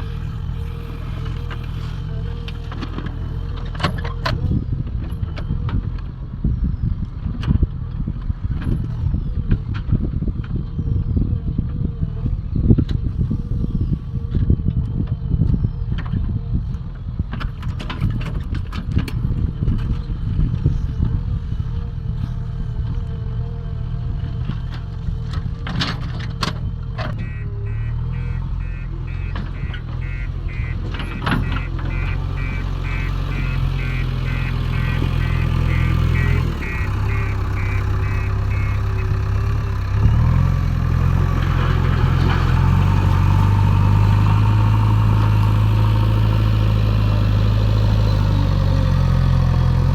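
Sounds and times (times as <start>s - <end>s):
diesel engine under hydraulic load: 0.0s - 49.9s
reversing alarm beeping: 27.2s - 39.2s.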